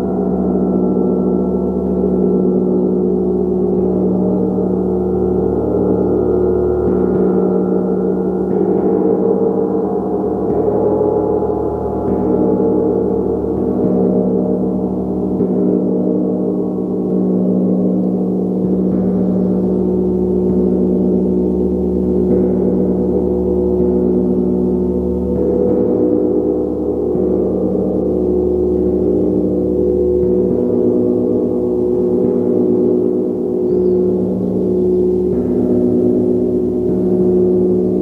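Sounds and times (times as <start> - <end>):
gong struck with soft mallet: 0.0 - 38.0.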